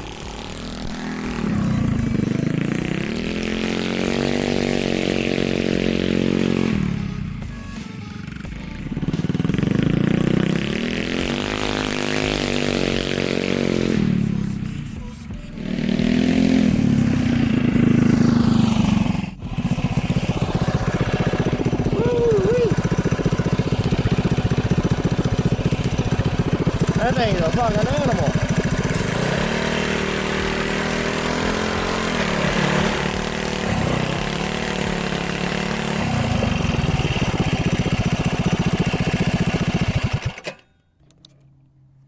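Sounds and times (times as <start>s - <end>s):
small engine revving hard: 0.0s - 7.4s, 8.8s - 14.2s, 15.6s - 40.6s.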